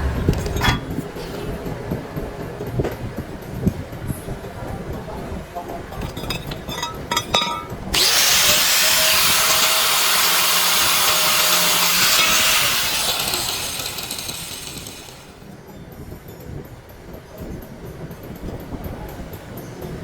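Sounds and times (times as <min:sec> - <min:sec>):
loud steady hiss: 0:08.0 - 0:15.4.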